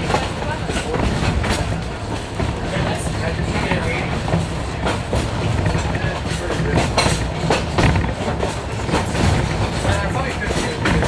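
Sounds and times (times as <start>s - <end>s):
train coach rumbling: 0.0s - 11.0s
wheels clicking and knocking: 0.0s - 11.0s.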